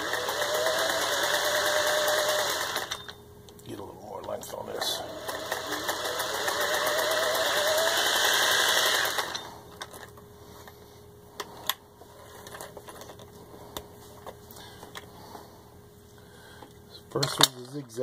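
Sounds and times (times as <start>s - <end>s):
sewing machine running: 0.0s - 3.2s, 4.8s - 9.6s.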